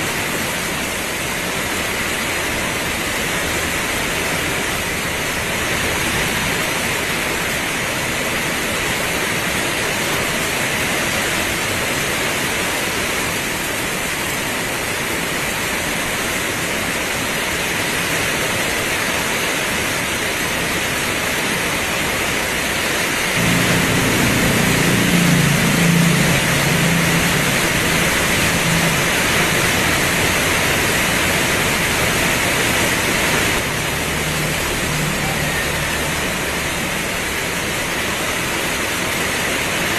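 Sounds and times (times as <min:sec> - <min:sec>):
heavy rain pouring: 0:00.0 - 0:39.9
low rumble: 0:23.4 - 0:38.1.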